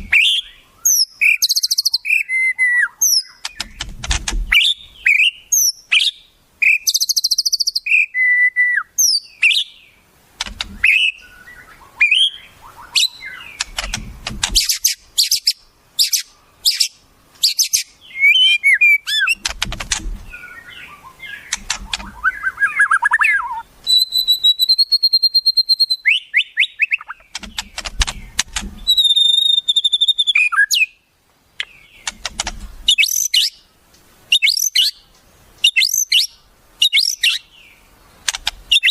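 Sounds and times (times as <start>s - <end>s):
songbird chips and trills: 0.0s - 9.8s, 10.4s - 31.0s, 31.6s - 33.6s, 34.3s - 38.9s.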